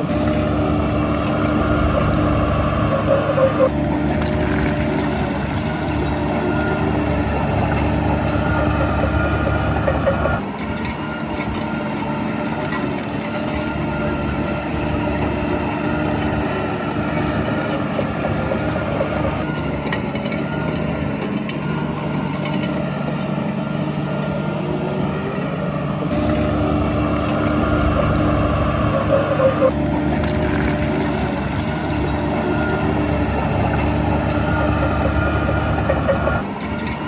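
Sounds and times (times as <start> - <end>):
heavy diesel engine running: 0.0 - 37.0.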